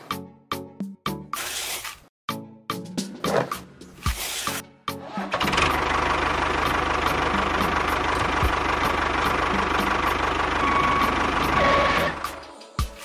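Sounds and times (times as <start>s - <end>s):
tractor engine chugging: 5.3s - 12.5s.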